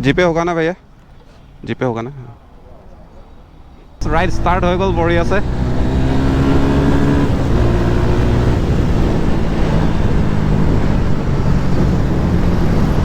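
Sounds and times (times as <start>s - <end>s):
wind and road noise: 0.0s - 13.0s
motorcycle engine running: 4.0s - 13.0s.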